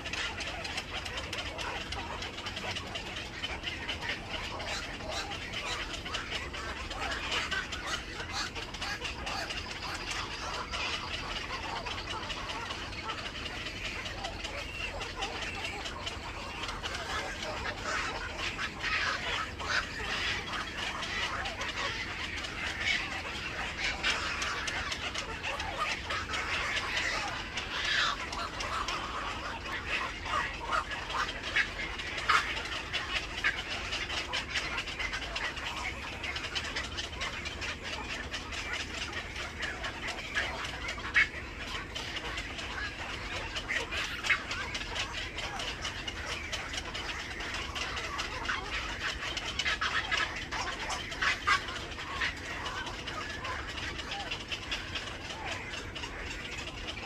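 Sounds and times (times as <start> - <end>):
birds chattering: 0.0 - 57.0.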